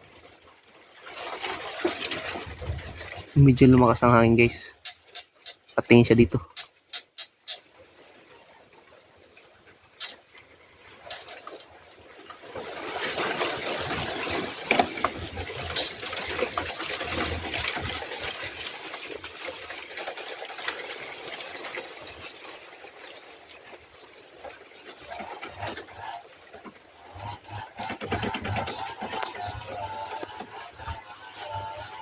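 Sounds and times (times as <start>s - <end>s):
wind rustling through leaves: 0.0s - 32.0s.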